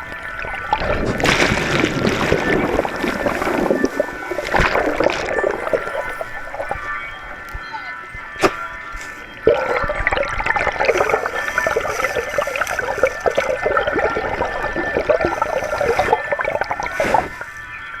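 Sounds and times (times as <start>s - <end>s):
gurgling rushing water: 0.0s - 18.0s.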